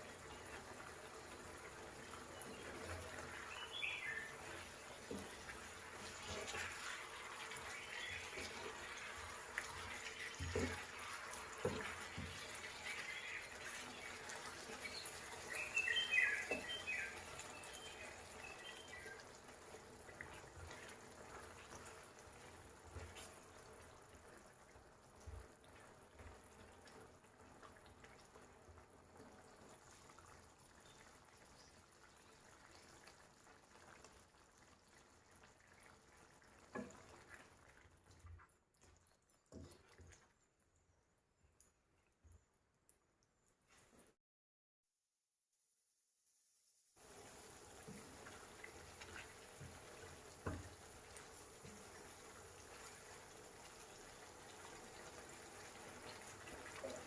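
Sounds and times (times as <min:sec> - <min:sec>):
low watery hiss: 0:00.0 - 0:28.6, 0:46.9 - 0:57.0
bird chirps: 0:14.8 - 0:19.2.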